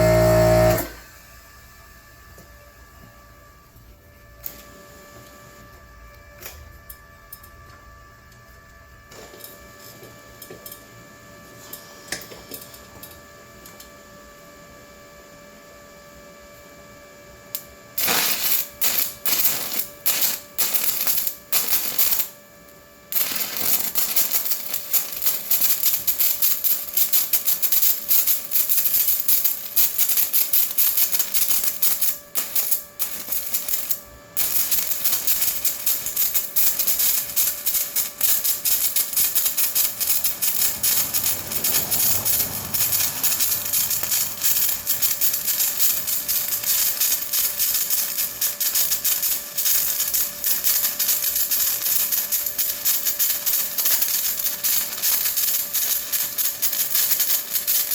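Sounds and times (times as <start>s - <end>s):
welding arc crackling: 0.0s - 1.0s, 17.6s - 22.4s, 23.1s - 57.9s
low hum with steady tones: 0.0s - 56.6s
stuttering arc strikes: 23.2s - 51.8s.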